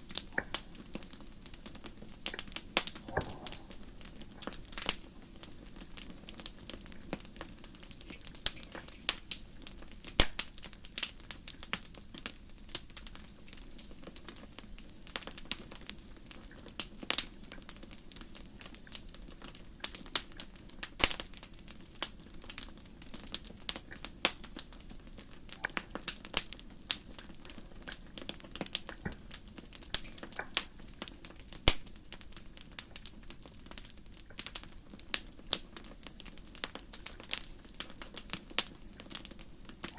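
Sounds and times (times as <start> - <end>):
low rush of flame: 0.0 - 11.1
wood fire crackling: 0.0 - 39.9.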